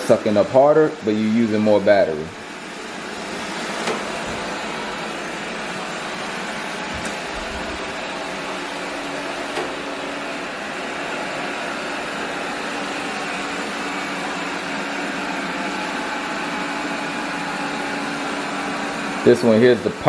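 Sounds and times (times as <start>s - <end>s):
robot vacuum whirring: 2.4s - 18.8s.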